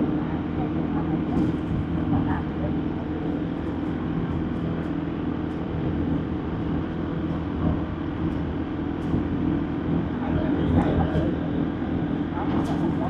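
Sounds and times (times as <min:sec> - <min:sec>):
road noise rush: 0:00.0 - 0:13.0.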